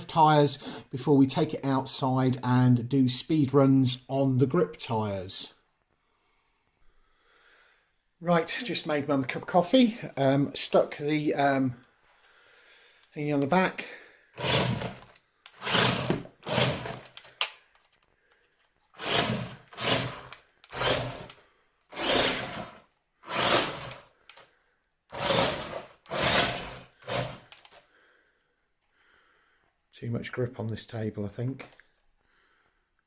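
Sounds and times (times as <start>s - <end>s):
electric motor throttle bursts: 14.4s - 17.2s, 19.0s - 21.3s, 21.9s - 24.1s, 25.1s - 27.6s.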